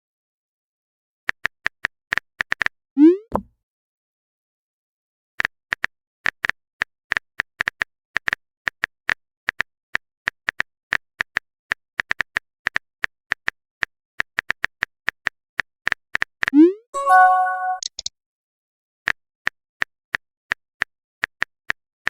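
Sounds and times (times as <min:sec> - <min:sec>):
keyboard typing clicks: 0:16.2 - 0:18.1.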